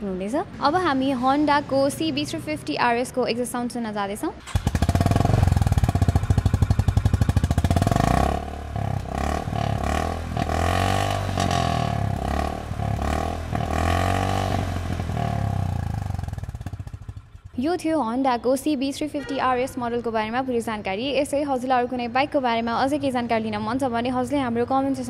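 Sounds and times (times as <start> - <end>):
motorcycle engine revving: 4.4 - 17.9.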